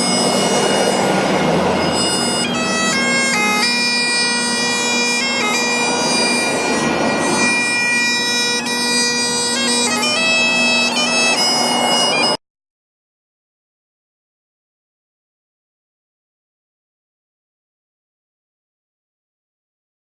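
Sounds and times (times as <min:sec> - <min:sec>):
bagpipe music: 0:00.0 - 0:12.4.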